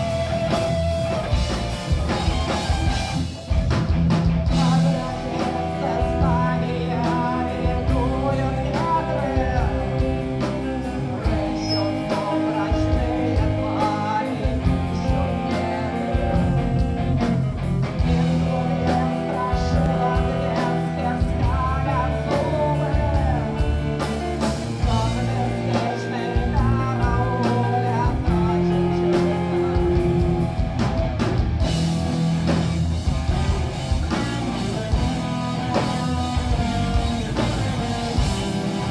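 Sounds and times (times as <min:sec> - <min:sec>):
rock band playing live: 0:00.0 - 0:38.9
person singing: 0:04.5 - 0:16.9, 0:18.0 - 0:30.2.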